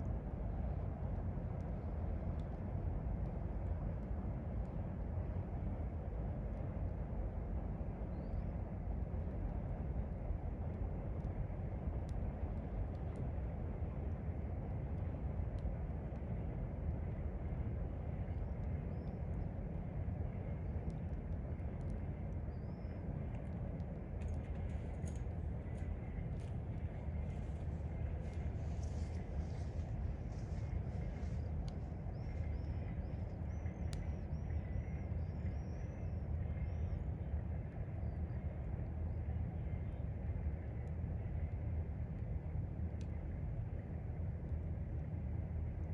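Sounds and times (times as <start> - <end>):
low outdoor rumble: 0.0 - 45.9
faint bird chirps: 22.1 - 23.0, 25.6 - 37.1.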